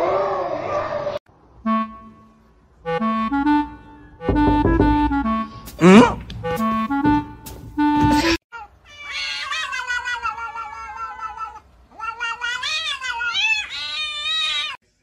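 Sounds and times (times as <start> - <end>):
cat yowling: 8.5 - 14.8.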